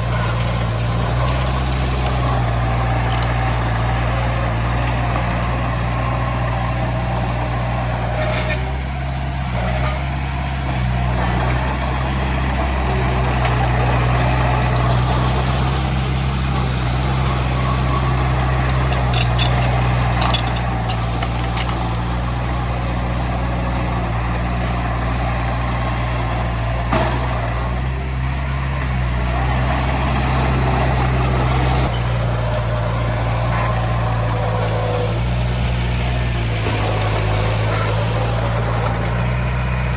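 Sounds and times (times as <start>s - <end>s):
heavy diesel engine running: 0.0s - 39.9s
sharp clanks: 12.5s - 22.1s.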